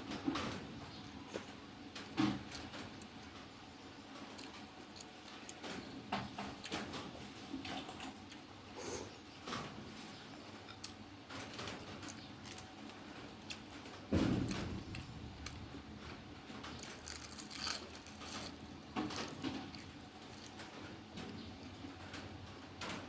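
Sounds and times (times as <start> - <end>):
dull thump: 14.1 - 15.0.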